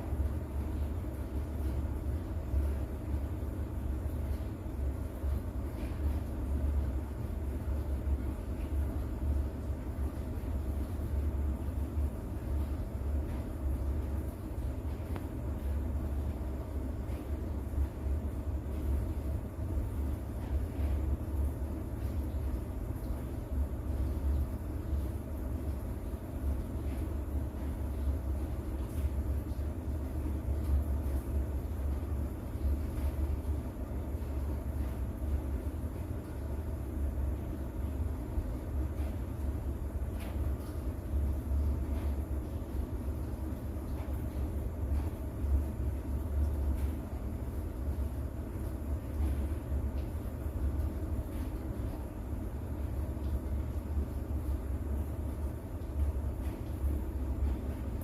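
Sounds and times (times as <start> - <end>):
rain hiss: 0.0 - 58.0.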